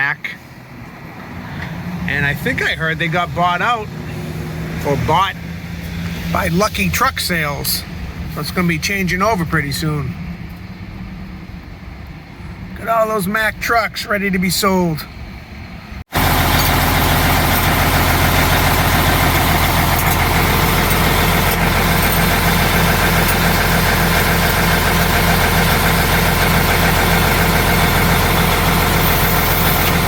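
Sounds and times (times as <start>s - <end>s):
truck engine idling: 14.5s - 30.0s.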